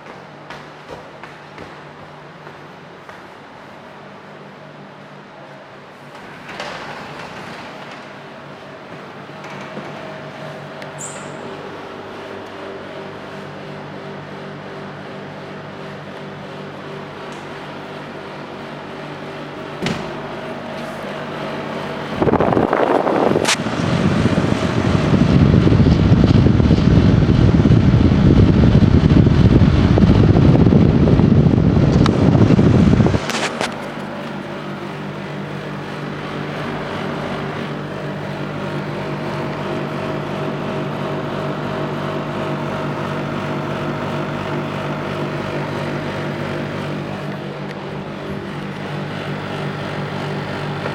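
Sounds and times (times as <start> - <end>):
air conditioner humming: 0.0 - 50.9
low rushing rumble on microphone: 22.0 - 33.7.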